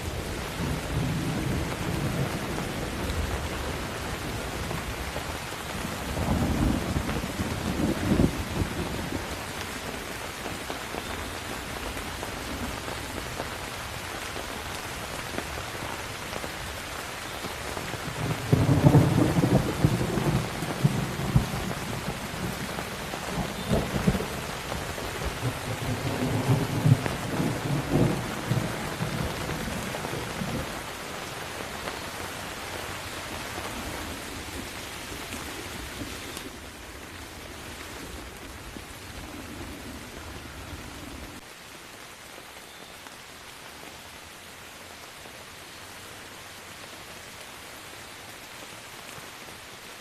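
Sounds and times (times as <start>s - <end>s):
thunder rumbling: 0.0s - 9.6s, 17.8s - 31.0s
steady rain: 0.0s - 50.0s.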